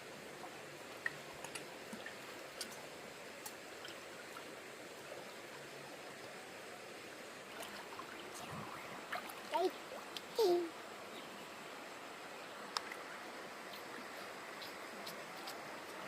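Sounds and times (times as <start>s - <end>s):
stream water flowing: 0.0s - 16.0s
faint sharp clicks or splashes: 1.0s - 4.5s, 12.7s - 13.1s.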